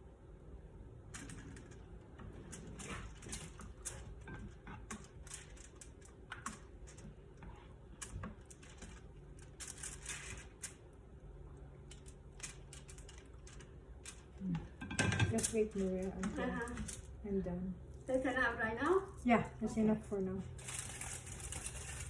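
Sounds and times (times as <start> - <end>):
low steady hum: 0.0 - 22.0
utensils and dishes clicking: 11.9 - 17.1, 20.6 - 22.0.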